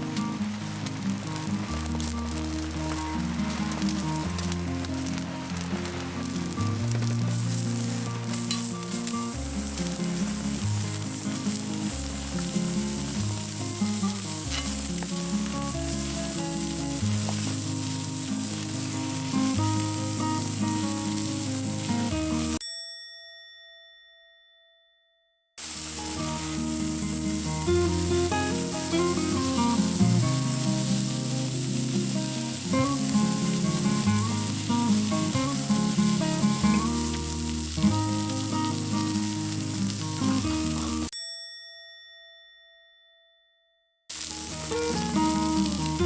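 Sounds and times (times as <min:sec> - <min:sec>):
background music: 0:00.0 - 0:22.6
offal sizzling in a pan: 0:00.0 - 0:22.6, 0:25.6 - 0:41.1, 0:44.1 - 0:46.0.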